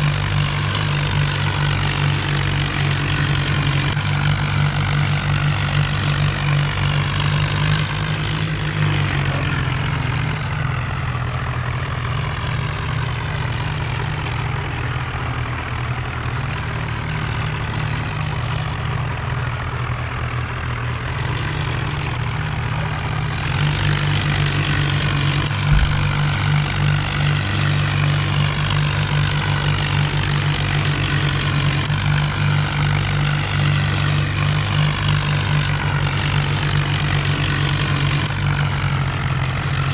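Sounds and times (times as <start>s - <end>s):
tractor diesel engine running: 0.0s - 39.9s
brief thump: 25.6s - 26.3s.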